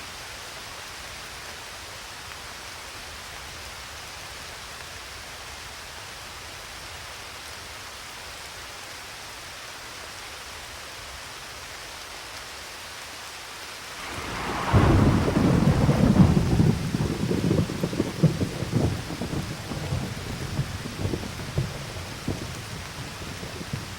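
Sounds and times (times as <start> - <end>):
steady rain falling: 0.0 - 23.9
thunderclap with rumble: 14.0 - 23.9.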